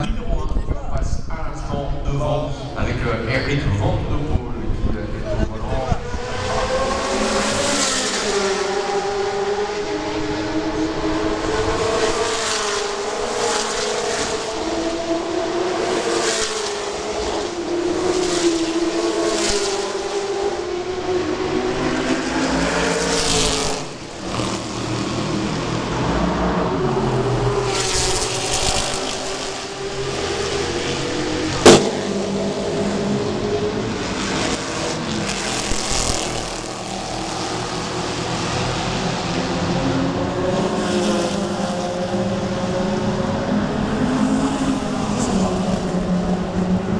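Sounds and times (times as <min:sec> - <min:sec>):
racing car engine revving: 0:06.0 - 0:46.9
sharp knock: 0:31.7 - 0:32.6.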